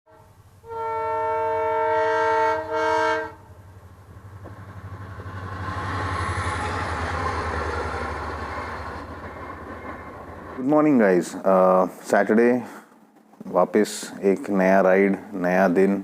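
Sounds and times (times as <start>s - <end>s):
loud multi-tone horn blasts: 0.1s - 3.5s.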